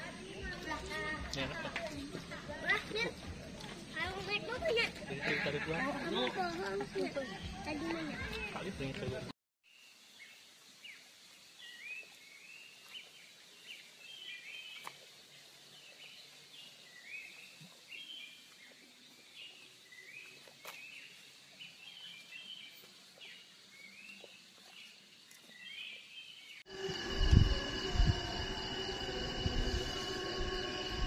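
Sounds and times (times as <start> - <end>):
faint steady hiss: 9.7 - 27.5.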